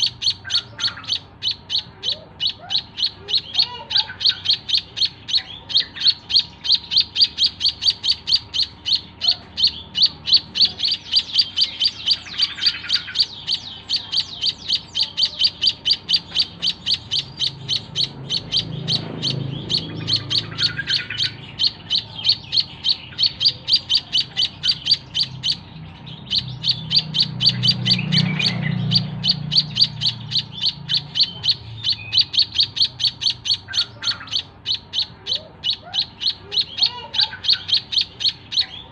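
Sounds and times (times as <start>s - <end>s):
bird high chirps: 0.0s - 38.9s
low rumble: 17.0s - 23.1s.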